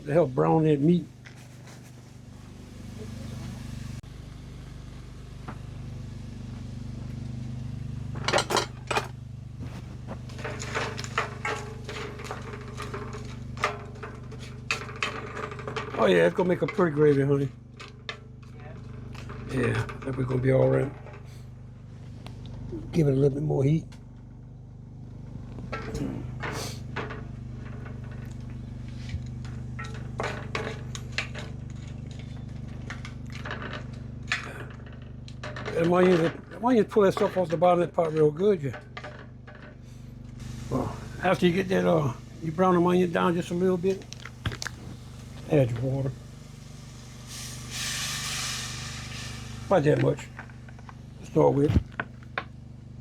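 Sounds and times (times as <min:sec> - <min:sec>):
steady low hum: 0:00.0 - 0:53.0
utensil scraping in a pot: 0:01.2 - 0:04.0, 0:09.6 - 0:16.9, 0:26.0 - 0:35.0, 0:46.2 - 0:51.2
metal utensil scraping a pot: 0:10.3 - 0:17.0.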